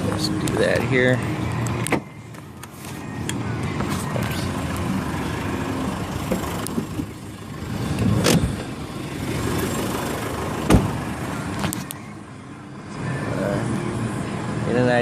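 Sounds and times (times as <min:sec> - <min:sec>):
steady background noise: 0:00.0 - 0:15.0
seat back scraping: 0:05.8 - 0:11.9
seat back thumping down: 0:06.2 - 0:07.1, 0:07.9 - 0:08.7, 0:10.6 - 0:11.0.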